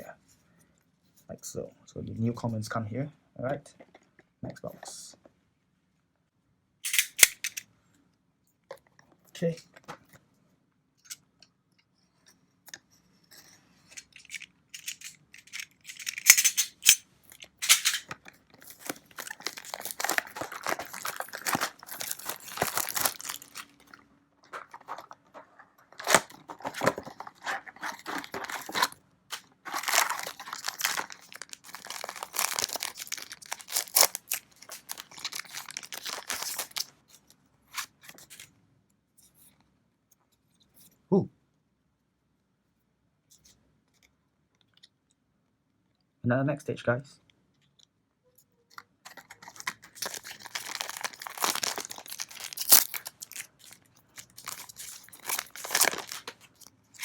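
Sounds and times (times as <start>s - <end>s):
card packaging tearing and crinkling: 14.0s - 36.9s, 49.1s - 57.0s.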